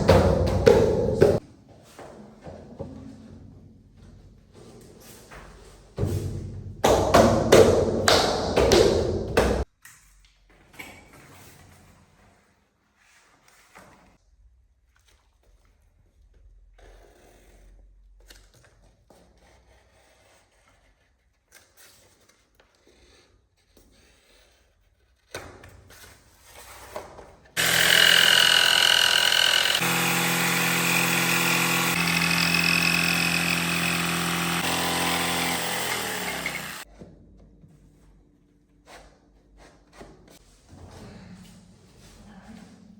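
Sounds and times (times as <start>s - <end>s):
electric power tool running: 27.6s - 36.8s.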